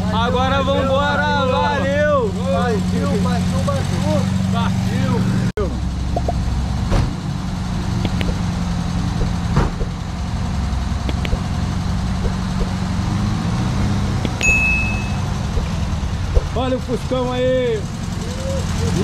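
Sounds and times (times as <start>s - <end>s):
car engine running: 0.0s - 19.0s
sound effect clicks: 6.2s - 6.4s, 8.0s - 8.5s, 11.0s - 11.5s
short bell ding: 14.4s - 15.3s.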